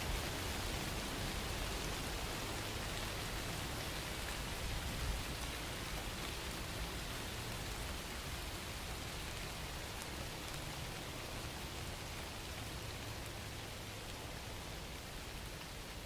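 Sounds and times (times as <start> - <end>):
raindrops pattering on a surface: 0.0 - 16.0
steady rain: 0.0 - 16.0.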